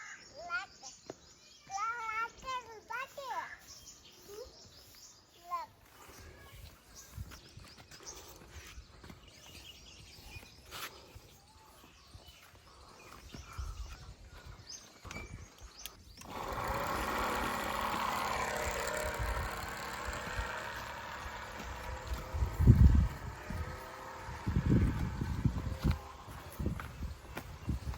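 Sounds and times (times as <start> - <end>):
small motor running: 16.2 - 27.9.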